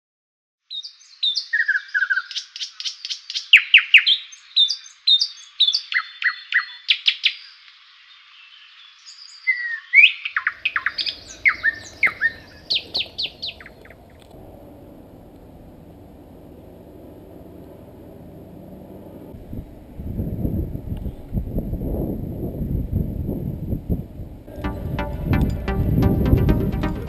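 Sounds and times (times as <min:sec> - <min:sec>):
songbird singing: 0:00.7 - 0:14.3.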